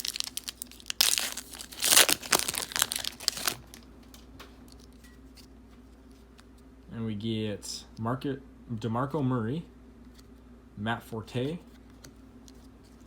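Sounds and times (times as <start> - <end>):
wrapper tearing and crinkling: 0.0 - 3.8.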